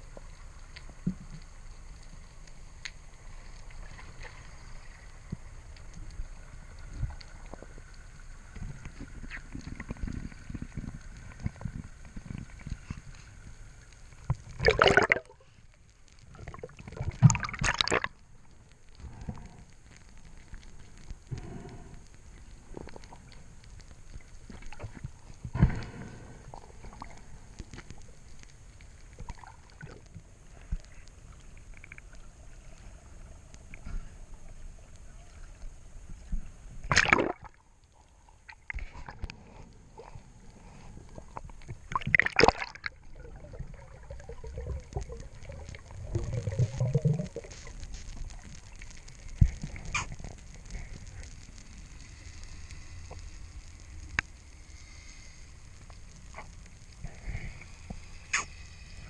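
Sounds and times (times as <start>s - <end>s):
water sloshing and gurgling: 3.2s - 19.8s, 24.1s - 28.4s, 29.0s - 34.6s, 35.5s - 51.7s
small clicks: 16.1s - 33.9s
loud splashes: 36.9s - 37.5s.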